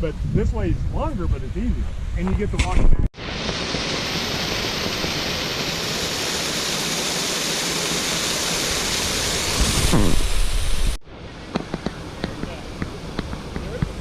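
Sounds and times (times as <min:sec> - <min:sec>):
water rushing over cascade: 0:03.2 - 0:14.0.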